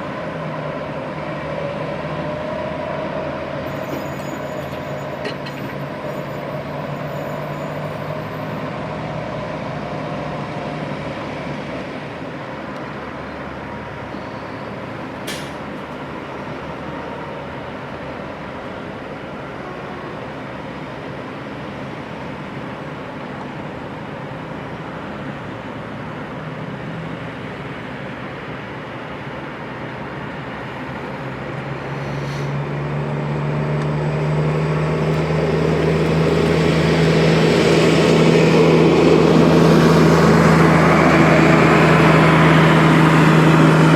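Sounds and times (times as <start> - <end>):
diesel truck engine running: 27.7 - 43.9.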